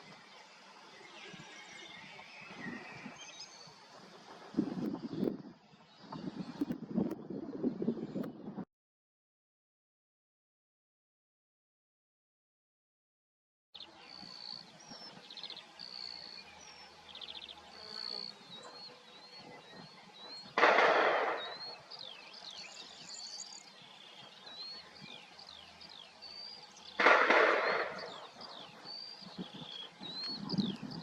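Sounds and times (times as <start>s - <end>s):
birds whistling calls: 13.8s - 31.0s.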